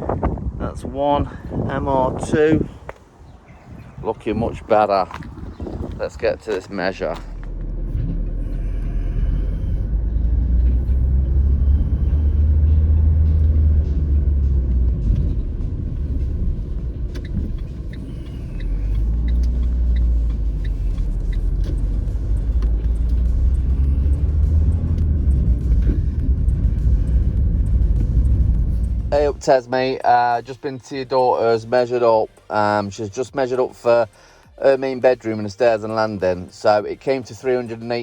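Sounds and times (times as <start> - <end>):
engine and road rumble: 0.0 - 38.0.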